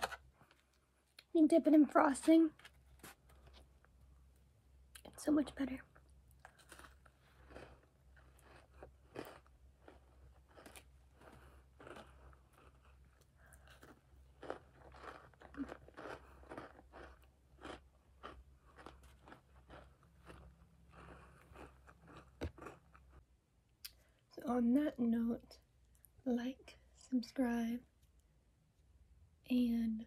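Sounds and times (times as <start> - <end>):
cookie crunching and chewing: 5.9 - 23.2.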